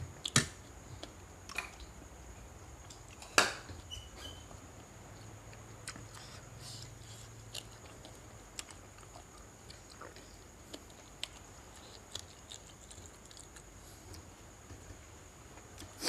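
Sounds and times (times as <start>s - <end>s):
person chewing crunchy food: 5.5s - 14.3s.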